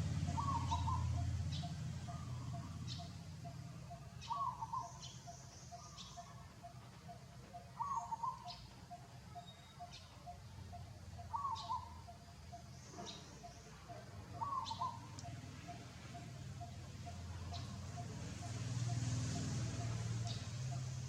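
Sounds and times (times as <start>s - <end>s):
fast pulsing chirp: 0.0s - 21.0s.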